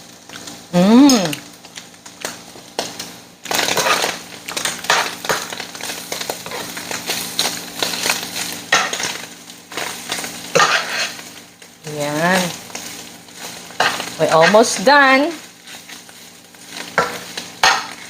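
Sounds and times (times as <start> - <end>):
faint frying sizzle: 0.0 - 18.0
metal spatula scraping frying pan: 3.6 - 4.1, 10.5 - 11.2, 16.9 - 18.0.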